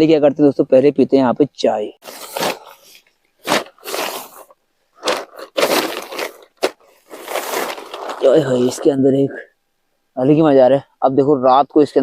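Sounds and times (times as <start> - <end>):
sticks and leaves crunching: 2.0 - 9.0.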